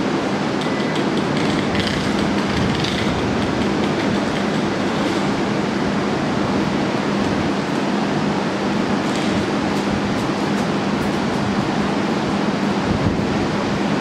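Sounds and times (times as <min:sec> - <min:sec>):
train rolling rumble: 0:00.0 - 0:14.0
wheels clicking over rail joints: 0:00.5 - 0:05.5.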